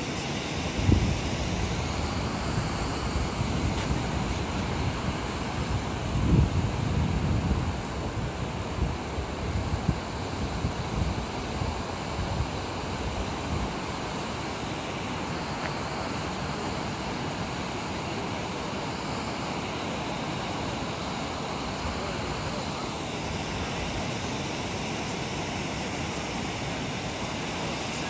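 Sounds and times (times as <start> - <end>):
ocean surf: 0.0 - 28.0
wind buffeting microphone: 0.5 - 14.0.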